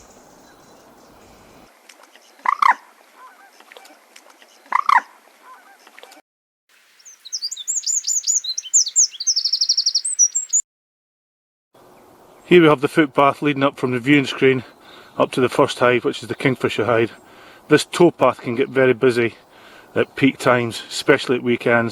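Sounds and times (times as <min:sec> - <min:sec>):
songbird singing a trill: 0:00.0 - 0:01.3, 0:06.8 - 0:10.6
waterbird honking calls: 0:07.1 - 0:10.6.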